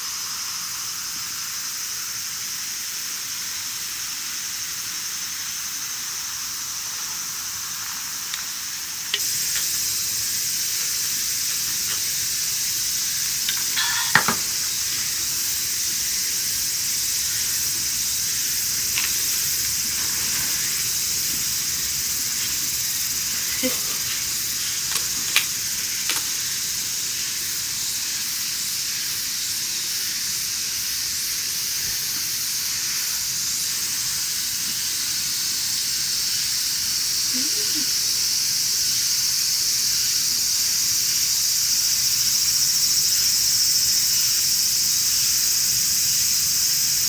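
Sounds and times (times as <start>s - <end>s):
food sizzling in a pan: 0.0s - 47.0s
utensil clicking against pan: 9.1s - 9.8s, 13.3s - 14.7s.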